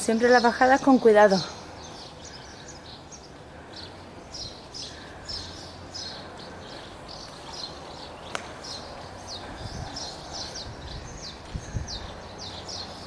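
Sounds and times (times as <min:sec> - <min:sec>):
low steady outdoor hum: 0:00.0 - 0:13.0
small birds chirping: 0:00.0 - 0:13.0.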